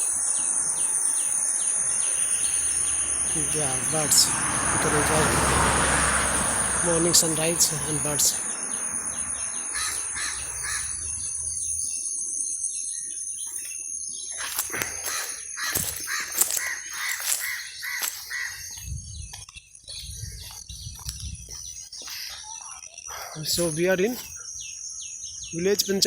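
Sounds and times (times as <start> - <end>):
steady high-pitched whine: 0.0 - 4.4
small birds chirping: 0.0 - 26.0
crows cawing: 2.0 - 11.4, 14.4 - 18.8.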